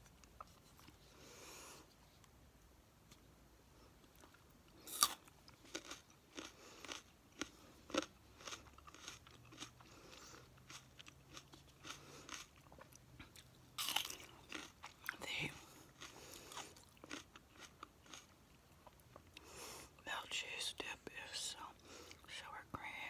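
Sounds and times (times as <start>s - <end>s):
person chewing crunchy food: 0.0s - 1.8s, 4.0s - 19.8s.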